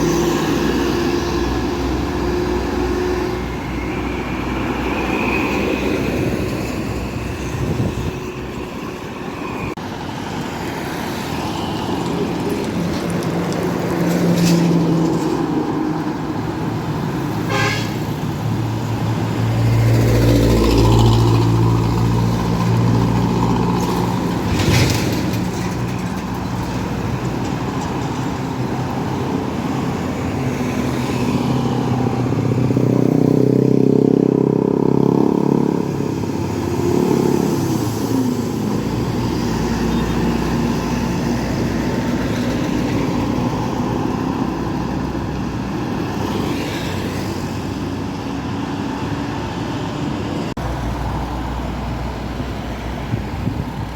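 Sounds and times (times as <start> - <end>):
heavy road traffic: 0.0 - 53.9
truck and bus engines passing: 0.0 - 53.9
vehicle horn: 17.4 - 18.2.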